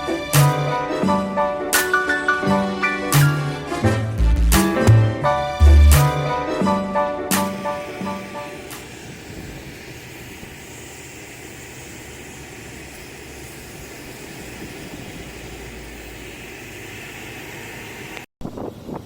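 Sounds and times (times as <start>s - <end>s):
airplane rushing noise: 0.0s - 19.0s
gusty wind noise: 7.7s - 19.0s.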